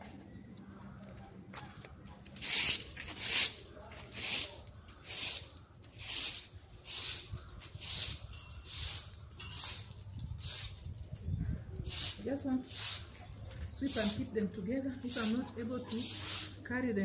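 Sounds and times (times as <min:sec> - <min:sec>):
broom sweeping: 0:02.4 - 0:10.9, 0:11.8 - 0:14.4, 0:15.0 - 0:16.6.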